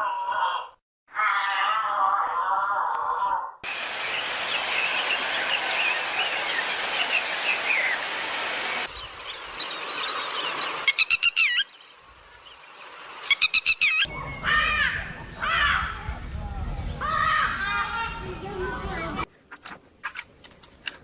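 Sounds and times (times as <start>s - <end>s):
rapid repeated bird calls: 3.8s - 14.5s
small birds chirping: 3.8s - 14.5s.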